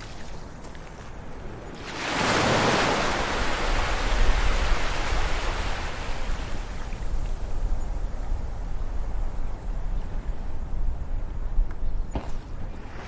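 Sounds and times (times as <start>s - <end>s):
ocean waves breaking: 1.3s - 7.0s.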